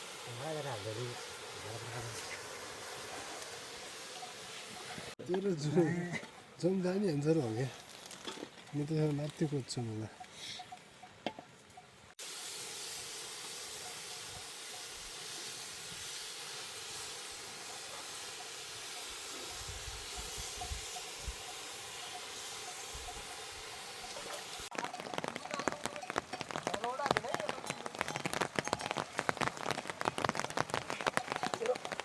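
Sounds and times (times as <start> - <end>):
heavy rain falling: 24.1 - 32.0.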